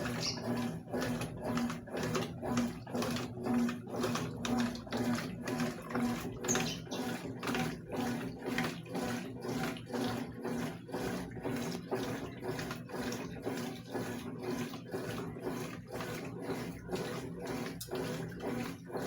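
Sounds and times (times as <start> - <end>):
low motor hum: 0.0 - 9.6
water sloshing in washing machine: 0.0 - 19.0.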